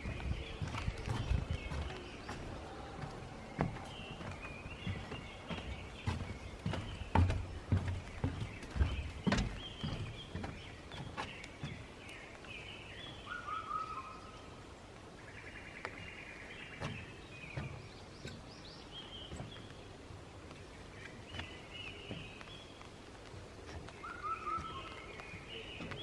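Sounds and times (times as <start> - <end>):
footsteps thudding: 0.0 - 11.8
small birds chirping: 0.0 - 26.0.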